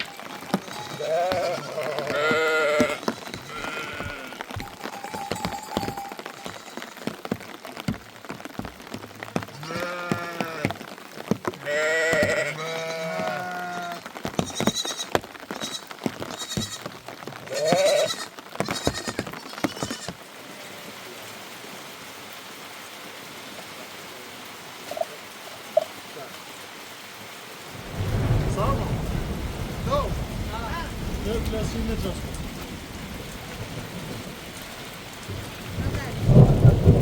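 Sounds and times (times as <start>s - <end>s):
sheep bleating: 0.0s - 4.9s, 6.4s - 7.2s, 9.5s - 10.8s, 11.6s - 20.9s
rain pattering: 0.0s - 37.0s.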